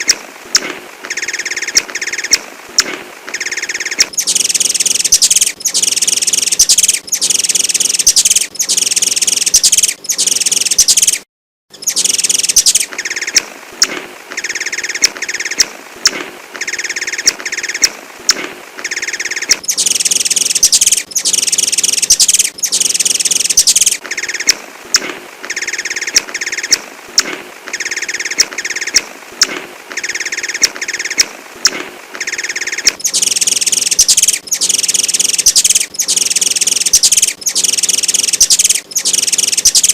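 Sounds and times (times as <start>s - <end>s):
sunbird chirping rapidly: 0.0s - 2.4s, 3.3s - 15.7s, 16.6s - 26.8s, 27.7s - 29.1s, 29.9s - 39.9s
sharp bird ticks: 0.0s - 39.9s.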